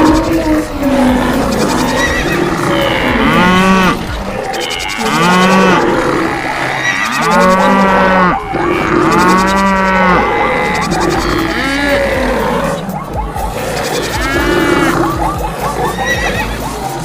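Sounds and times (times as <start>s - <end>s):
cattle mooing: 0.0s - 16.7s.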